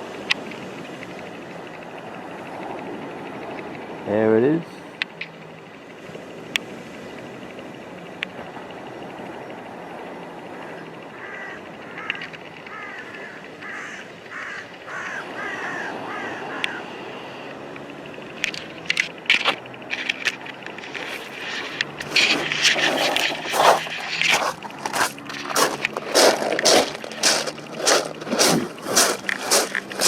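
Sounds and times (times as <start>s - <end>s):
bird harsh calls: 10.6s - 17.1s
crunching and scraping: 18.4s - 30.0s.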